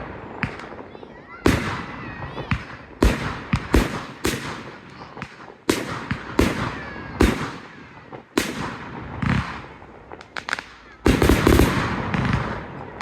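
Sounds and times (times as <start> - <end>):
fireworks bangs: 0.0 - 13.0
small firework cracks: 0.0 - 13.0.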